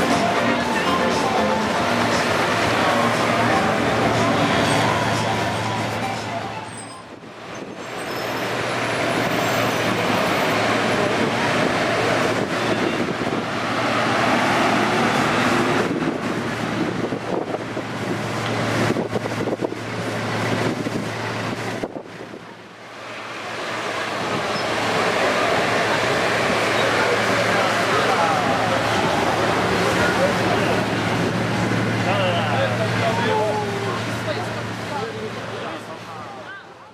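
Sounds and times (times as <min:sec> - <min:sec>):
cars driving past: 0:00.0 - 0:36.5
wind on microphone: 0:11.0 - 0:22.5.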